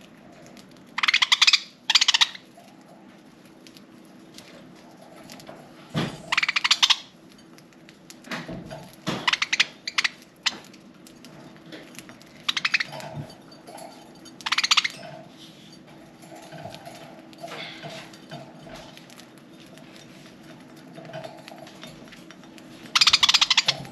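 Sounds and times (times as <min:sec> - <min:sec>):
budgerigars rapid clicking: 0:01.0 - 0:02.4, 0:06.3 - 0:07.1, 0:09.2 - 0:10.6, 0:12.5 - 0:13.0, 0:14.4 - 0:15.0, 0:23.0 - 0:23.9.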